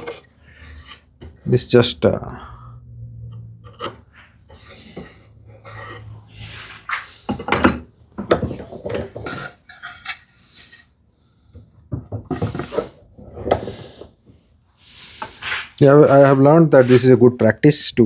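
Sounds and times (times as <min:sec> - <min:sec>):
hand tool scraping wood: 0:00.0 - 0:02.0, 0:03.6 - 0:07.8, 0:15.0 - 0:17.2.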